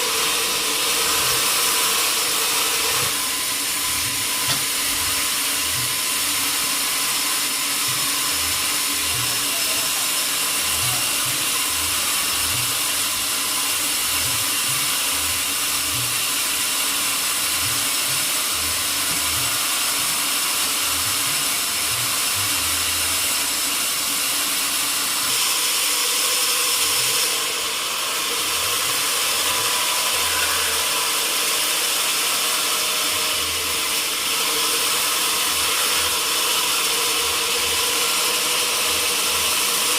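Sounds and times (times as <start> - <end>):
sawmill machinery hiss and whine: 0.0 - 39.9.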